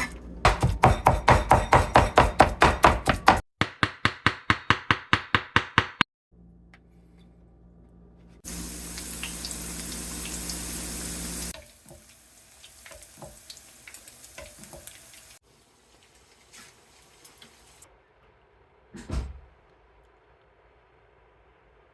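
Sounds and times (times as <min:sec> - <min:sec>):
kitchen tap running: 0:08.5 - 0:17.8
water dripping: 0:08.5 - 0:17.8.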